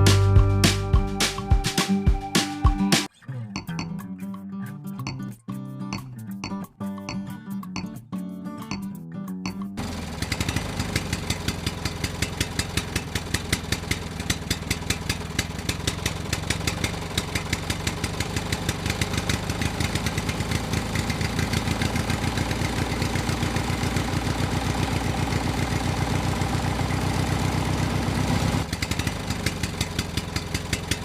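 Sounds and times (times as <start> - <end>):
chaff cutter machine ticking: 9.5 - 27.8, 28.6 - 31.0.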